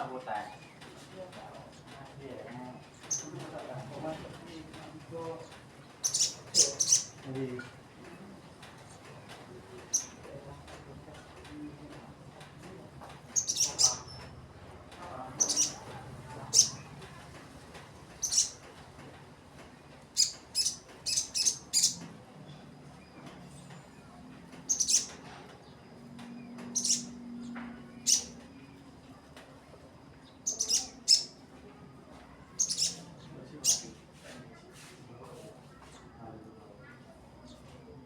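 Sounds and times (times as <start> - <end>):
bird chirps: 3.0 - 3.3, 6.0 - 7.2, 9.9 - 10.2, 13.4 - 14.3, 15.4 - 15.9, 16.5 - 16.9, 18.2 - 18.6, 20.2 - 22.6, 24.6 - 25.8, 26.4 - 28.8, 30.3 - 31.4, 32.5 - 33.9.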